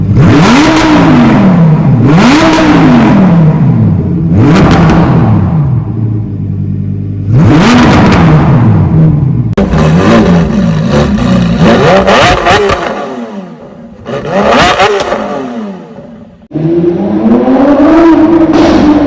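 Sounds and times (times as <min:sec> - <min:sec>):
car engine revving hard: 0:00.0 - 0:05.6, 0:07.2 - 0:19.0.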